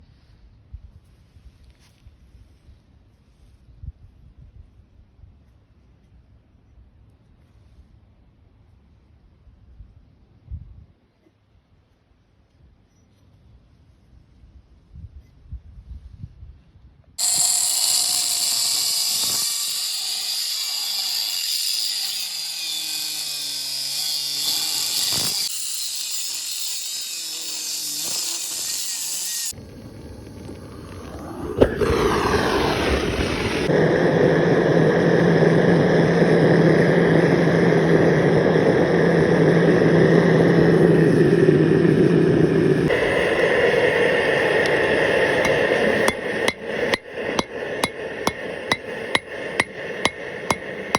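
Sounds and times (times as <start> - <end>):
machine droning: 17.2 - 22.0, 29.4 - 50.9
power tool grinding steel: 17.2 - 29.6, 42.9 - 50.9.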